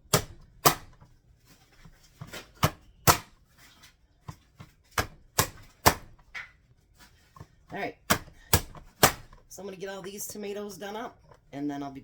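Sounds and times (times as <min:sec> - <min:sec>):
knife chopping on cutting board: 0:00.0 - 0:01.0, 0:02.2 - 0:03.4, 0:04.3 - 0:06.4, 0:08.0 - 0:09.4.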